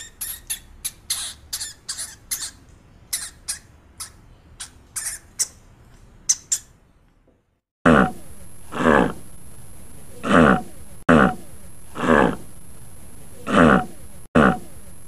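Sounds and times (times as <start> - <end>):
meerkats squeaking and chirping: 0.0 - 5.6.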